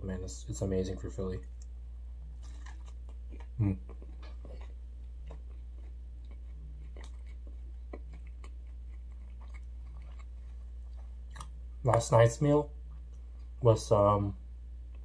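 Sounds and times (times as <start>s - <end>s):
low hum: 0.0s - 15.0s
chewing sandwich: 1.4s - 12.1s
short vocal sound: 3.6s - 4.0s.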